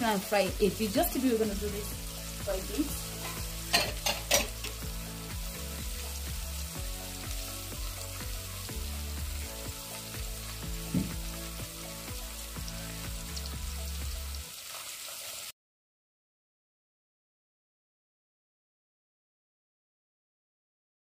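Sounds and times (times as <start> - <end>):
background music with low notes: 0.0 - 14.6
fish sizzling in oil: 0.0 - 15.6.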